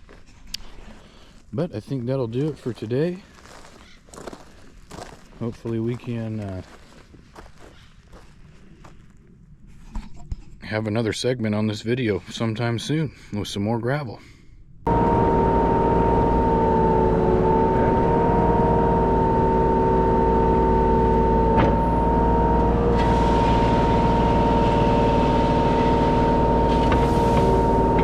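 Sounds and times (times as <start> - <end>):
excavator diesel engine running: 14.9 - 28.0
high even whine: 14.9 - 28.0.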